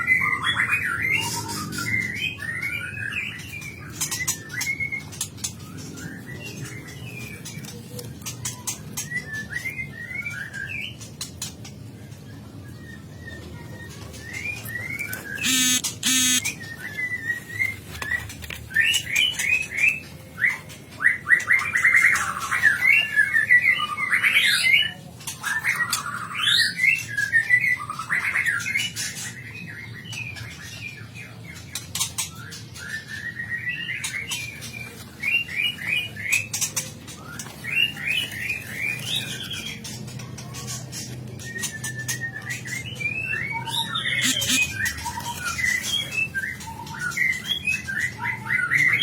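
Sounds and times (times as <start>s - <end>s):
songbirds chirping and whistling: 0.0s - 49.0s
harsh rattling bird call: 15.3s - 16.6s, 44.0s - 45.2s.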